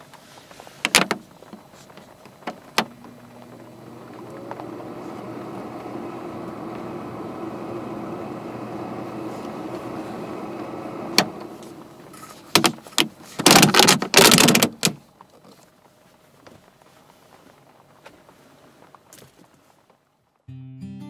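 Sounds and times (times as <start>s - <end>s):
portable cooler humming: 0.0s - 15.6s
plastic duct rustling and clattering: 12.0s - 15.8s.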